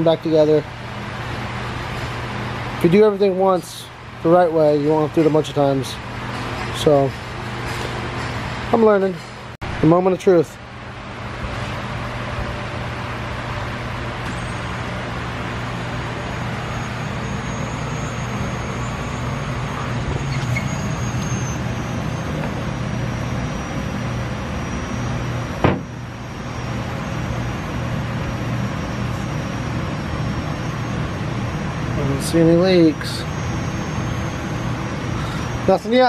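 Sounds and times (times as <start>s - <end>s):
thin high whine: 11.4s - 36.0s
fuel pump humming: 13.7s - 36.0s
sharp knock: 25.6s - 25.9s.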